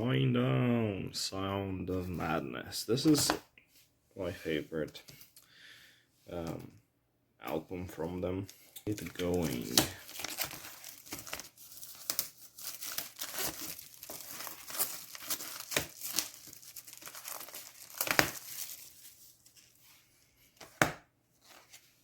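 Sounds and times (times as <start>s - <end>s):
plastic wrap crinkling and tearing: 8.9s - 19.8s.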